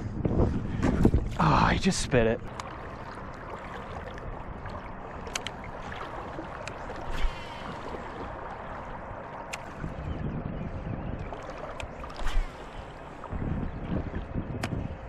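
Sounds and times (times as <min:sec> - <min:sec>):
river water rushing: 0:02.4 - 0:09.8.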